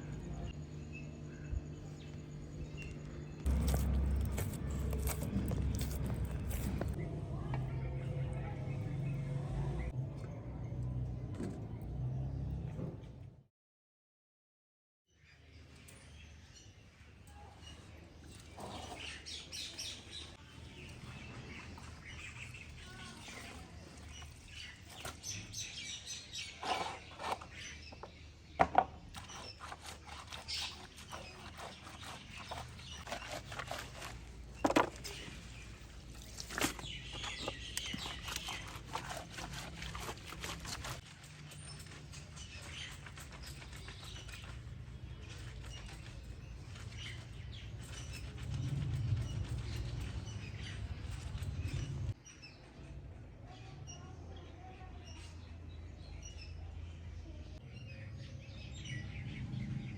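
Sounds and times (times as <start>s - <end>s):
steady low hum: 0.0s - 9.9s
birds chirping: 0.0s - 10.7s, 15.2s - 52.9s.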